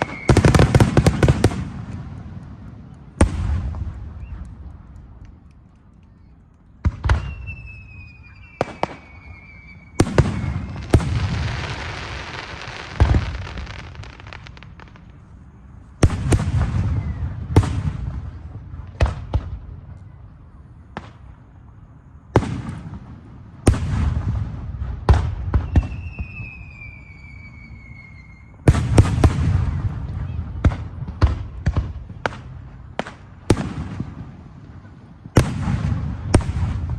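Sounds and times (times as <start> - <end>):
fireworks bangs with echo: 0.0 - 4.8, 6.8 - 15.2, 16.0 - 20.0, 22.3 - 27.0, 28.7 - 36.9
fireworks crackle: 0.0 - 19.4
thin falling whistle: 7.2 - 10.8, 25.6 - 28.6.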